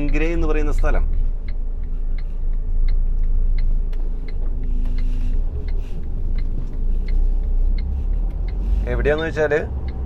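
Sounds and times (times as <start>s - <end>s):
light regular ticking: 0.0s - 10.0s
truck diesel engine rumbling: 0.0s - 10.0s.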